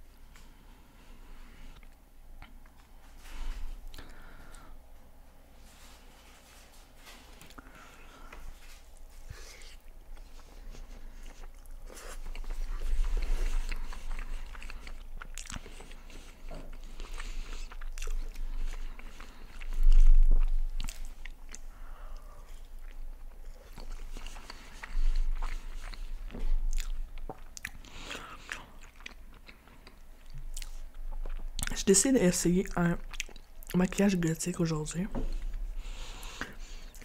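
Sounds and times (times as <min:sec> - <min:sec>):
soft crunches of fries: 0:05.6 - 0:34.7
chewing with mouth clicks: 0:08.6 - 0:32.0, 0:32.6 - 0:33.8.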